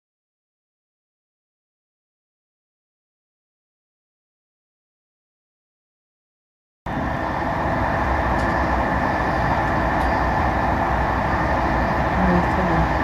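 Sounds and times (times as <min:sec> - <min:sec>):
passenger train rumbling at speed: 0:06.9 - 0:13.0.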